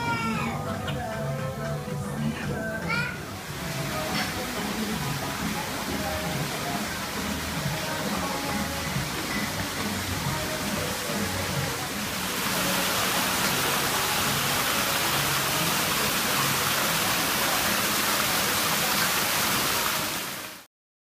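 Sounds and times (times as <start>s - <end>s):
rushing water: 0.0s - 20.7s.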